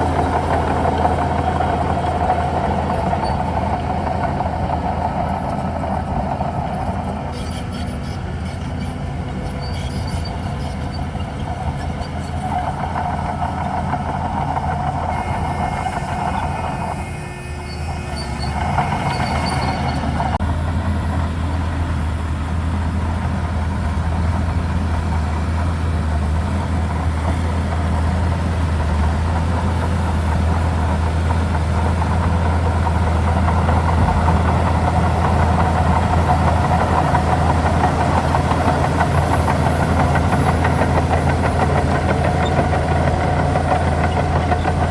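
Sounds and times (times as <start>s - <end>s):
bulldozer diesel drone: 0.0s - 44.9s
track clatter: 0.0s - 44.9s
short high squeaks: 7.3s - 12.4s, 15.1s - 20.2s.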